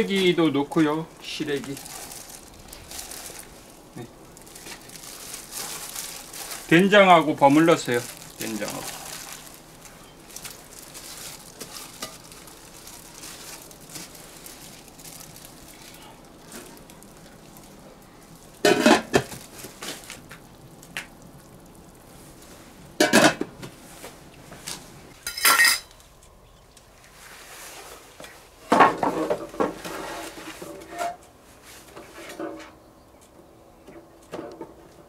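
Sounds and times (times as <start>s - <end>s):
metal pot and utensils clattering: 11.6s - 12.4s, 18.6s - 19.4s, 23.0s - 23.5s, 25.2s - 26.0s.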